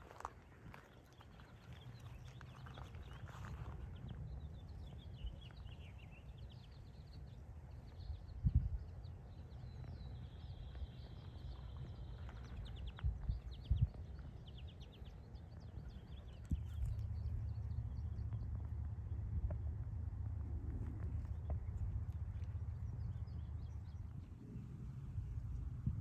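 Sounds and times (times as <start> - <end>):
small birds chirping: 0.2 - 18.8
low rumble: 16.4 - 26.0.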